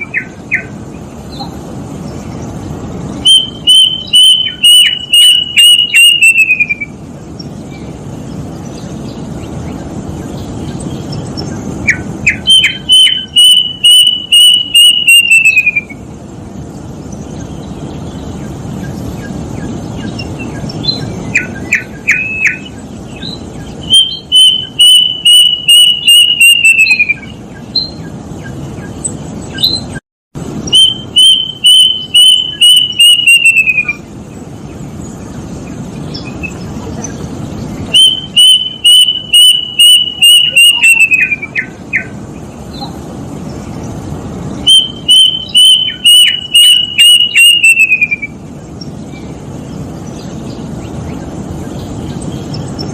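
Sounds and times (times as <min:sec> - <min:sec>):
cuckoo whistling song: 0:00.0 - 0:01.6, 0:03.2 - 0:07.0, 0:11.4 - 0:16.1, 0:19.2 - 0:28.9, 0:29.5 - 0:30.0, 0:30.6 - 0:34.1, 0:37.9 - 0:42.9, 0:44.6 - 0:48.4
steady low hiss: 0:00.0 - 0:52.9.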